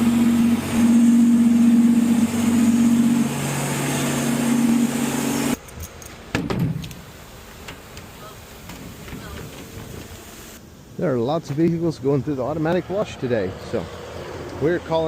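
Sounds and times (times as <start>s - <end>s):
motor humming: 0.0s - 5.6s.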